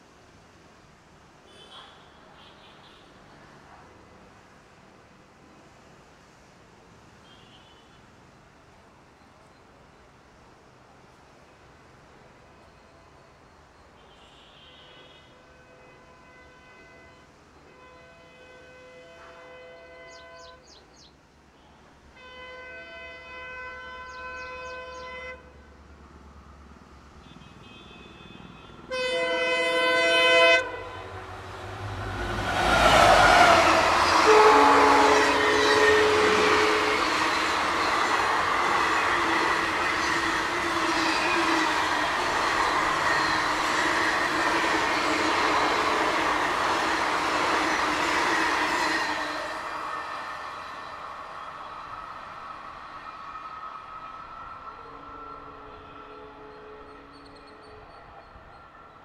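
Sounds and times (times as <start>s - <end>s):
train passing at speed: 3.2s - 7.3s, 15.5s - 59.0s
train horn blasts: 14.0s - 20.6s, 22.1s - 25.7s, 27.2s - 51.8s, 54.4s - 58.6s.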